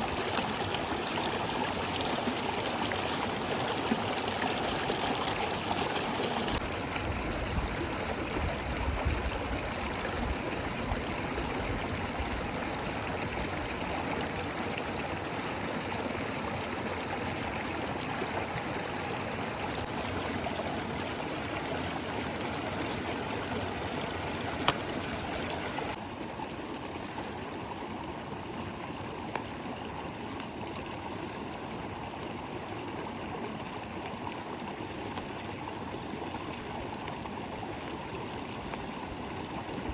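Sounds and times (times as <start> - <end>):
river water rushing: 0.0 - 26.4.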